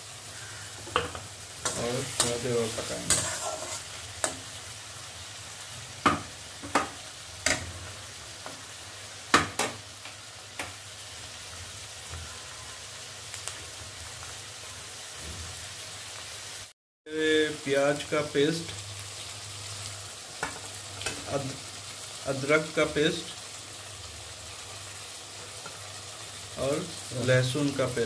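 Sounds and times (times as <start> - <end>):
food sizzling in oil: 0.0 - 28.0
wooden spatula knocking on pan: 6.0 - 7.6.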